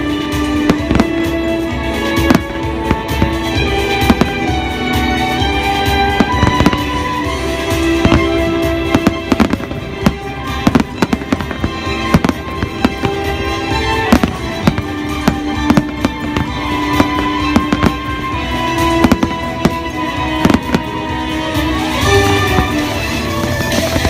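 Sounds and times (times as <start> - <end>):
fireworks bangs: 0.0 - 24.0
music playing: 0.0 - 24.0.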